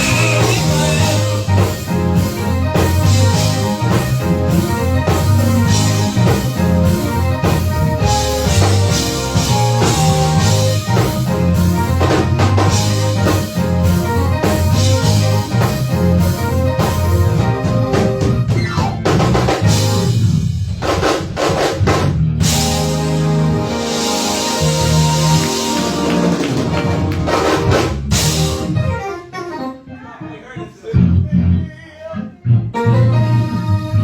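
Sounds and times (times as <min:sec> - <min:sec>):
sustained chords: 0:00.0 - 0:18.5, 0:22.4 - 0:29.7
bass notes: 0:00.0 - 0:29.2, 0:30.9 - 0:34.0
drum kit beat: 0:00.0 - 0:29.3.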